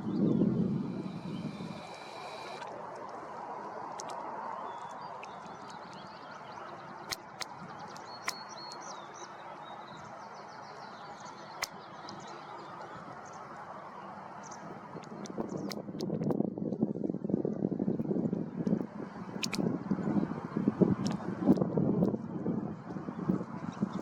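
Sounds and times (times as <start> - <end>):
small birds twittering: 0.0 - 2.6, 4.0 - 13.6
sharp clicks: 19.4 - 19.6.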